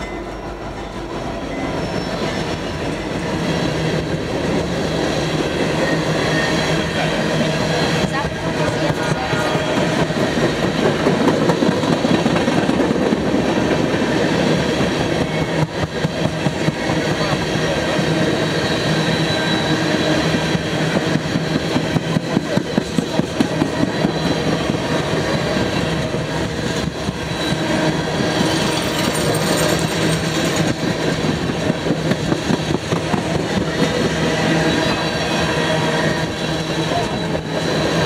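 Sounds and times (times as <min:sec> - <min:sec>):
freight train rumbling past: 0:00.0 - 0:38.0
wheels clickety-clack: 0:06.3 - 0:17.8, 0:20.2 - 0:35.4.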